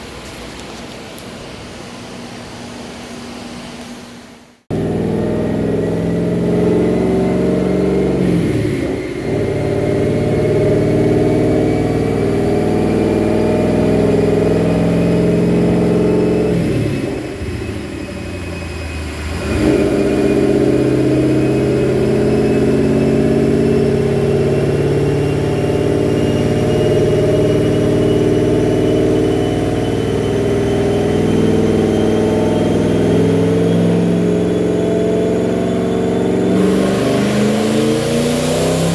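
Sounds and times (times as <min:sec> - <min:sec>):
thin rising whine: 0:02.7 - 0:38.9
car engine running hard: 0:04.7 - 0:38.9.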